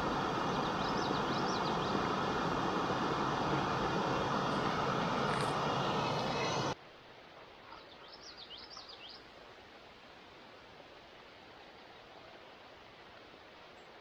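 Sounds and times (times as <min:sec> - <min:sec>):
loud steady rushing noise: 0:00.0 - 0:06.8
faint outdoor hiss: 0:00.0 - 0:14.0.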